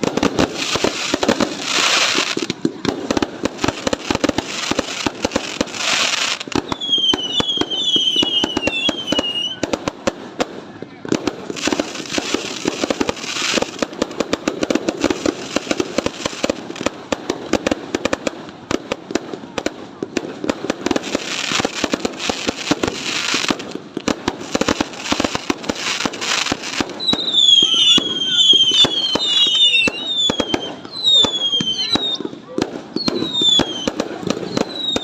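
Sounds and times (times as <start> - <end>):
fireworks bangs and crackling: 0.0 - 35.0.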